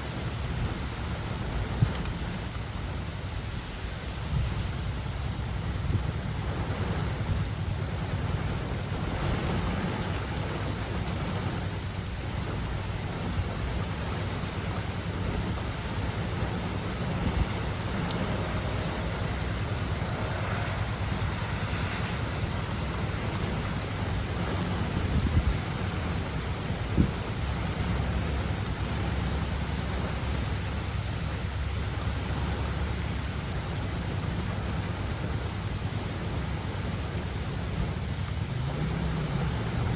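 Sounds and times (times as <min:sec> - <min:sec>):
heavy rain: 0:00.0 - 0:39.9
thunder rumbling: 0:04.4 - 0:39.9.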